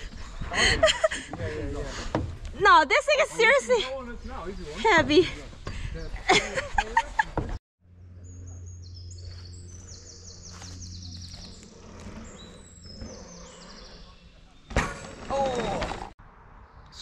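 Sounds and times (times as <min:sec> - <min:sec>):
songbird singing trills: 0:07.9 - 0:14.7.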